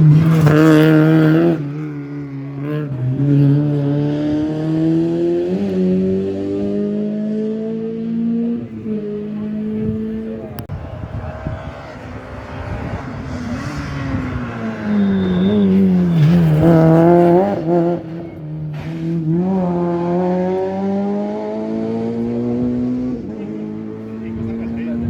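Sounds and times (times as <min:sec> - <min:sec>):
rally car engine: 0:00.0 - 0:25.0.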